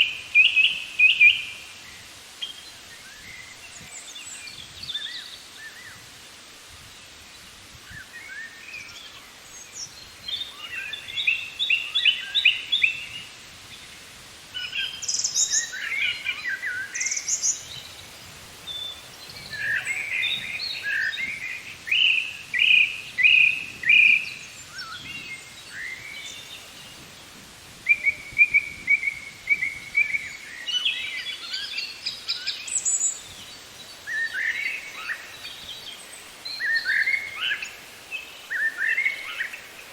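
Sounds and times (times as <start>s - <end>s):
birds chirping and trilling: 14.6s - 27.3s, 27.9s - 39.9s.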